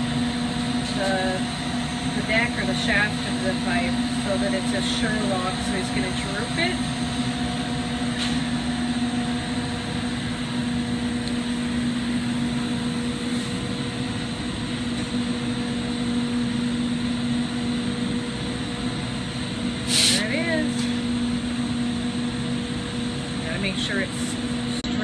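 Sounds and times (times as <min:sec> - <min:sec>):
constant low hum: 0:00.0 - 0:25.0
torch flame rushing: 0:19.7 - 0:20.6.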